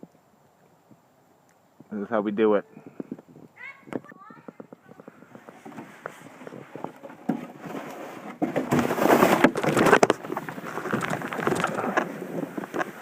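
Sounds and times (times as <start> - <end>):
sled runners scraping snow: 4.4 - 13.0.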